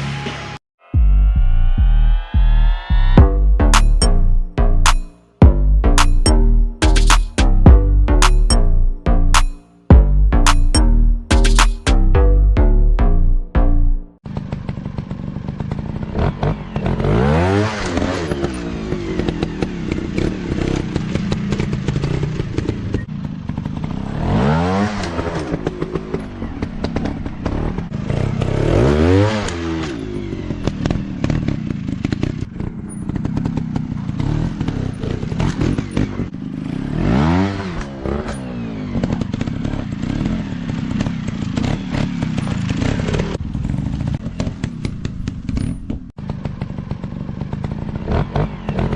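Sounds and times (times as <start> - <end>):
dirt bike engines revving: 14.3 - 48.9.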